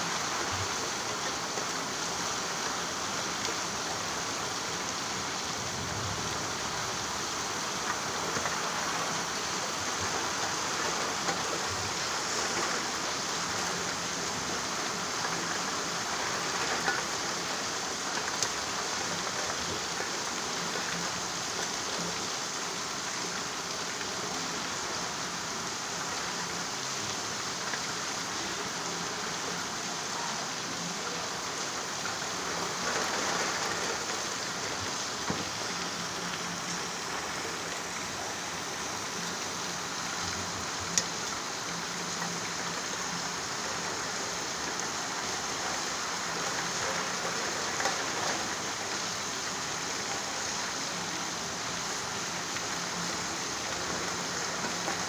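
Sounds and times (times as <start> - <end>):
steady rain falling: 0.0 - 55.0
raindrops ticking: 31.1 - 50.3.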